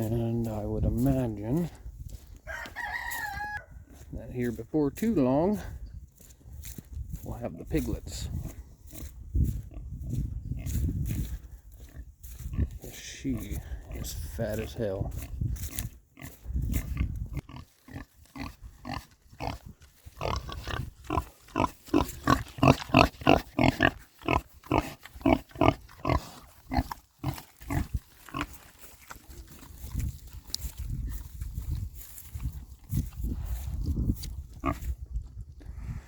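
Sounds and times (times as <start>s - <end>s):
pig grunting: 16.2s - 30.0s.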